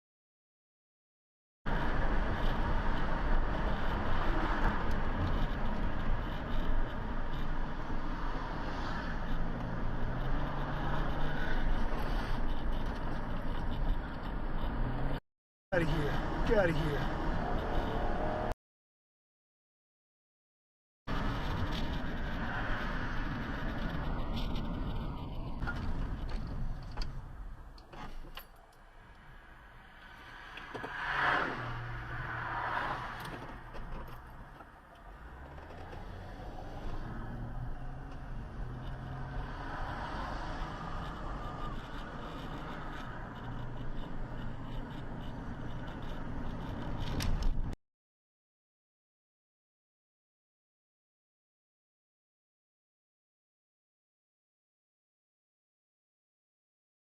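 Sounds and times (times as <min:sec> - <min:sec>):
car engine and road noise: 0:01.7 - 0:18.6, 0:21.1 - 0:47.8
vehicle passing by: 0:30.0 - 0:33.7.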